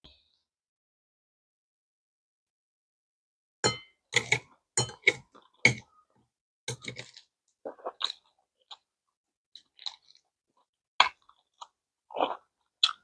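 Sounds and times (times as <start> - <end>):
chewing and crunching: 6.8 - 8.9, 9.5 - 13.0.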